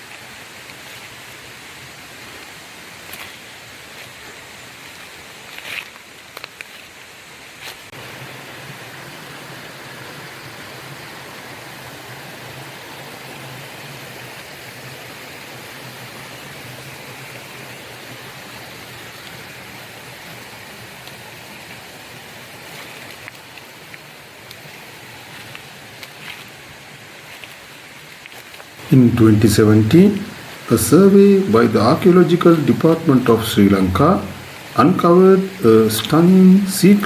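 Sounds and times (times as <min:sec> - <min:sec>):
stream flowing: 0:00.0 - 0:37.0.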